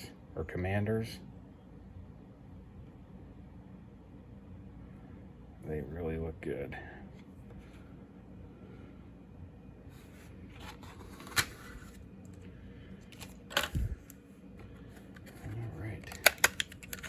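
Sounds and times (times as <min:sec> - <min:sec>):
low steady hum: 0:00.0 - 0:17.0
plastic packaging handled: 0:10.0 - 0:17.0.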